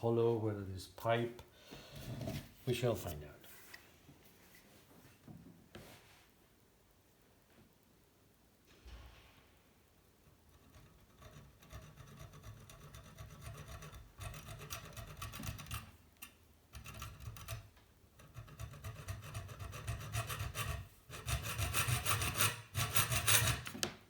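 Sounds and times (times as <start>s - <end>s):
hand saw cutting metal tube: 18.5s - 23.7s.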